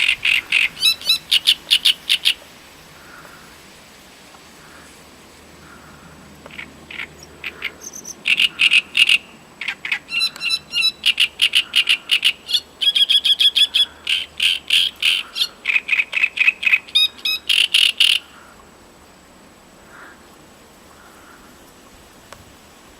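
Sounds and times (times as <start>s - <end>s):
warbler singing harsh notes: 0.0s - 2.4s, 6.5s - 18.3s.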